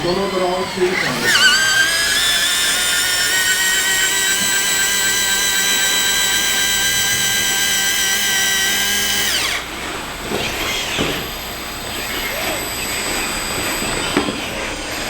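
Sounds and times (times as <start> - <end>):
small electric motor whining: 0.0 - 15.0.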